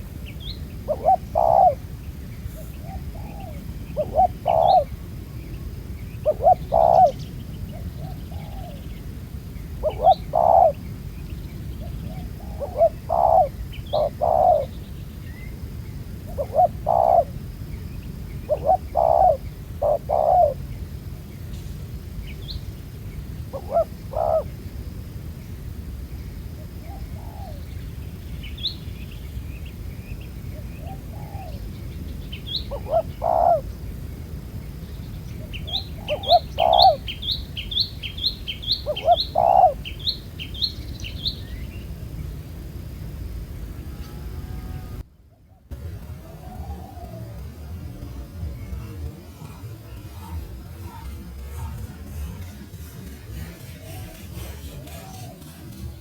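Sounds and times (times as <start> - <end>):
small birds chirping faintly: 0.0 - 56.0
doves cooing: 0.8 - 1.9, 2.5 - 5.0, 6.2 - 7.2, 9.8 - 10.8, 11.8 - 14.7, 16.2 - 17.4, 18.4 - 20.6, 23.5 - 24.5, 32.5 - 33.9, 35.4 - 40.4, 45.7 - 56.0.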